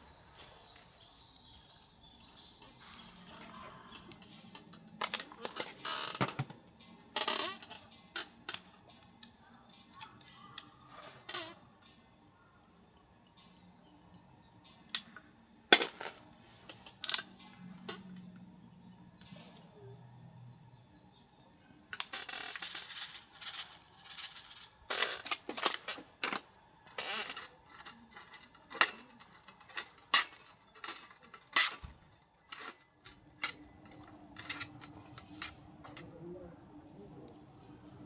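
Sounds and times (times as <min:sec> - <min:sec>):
cookware clinking and clattering: 0:02.8 - 0:06.6, 0:22.1 - 0:36.0.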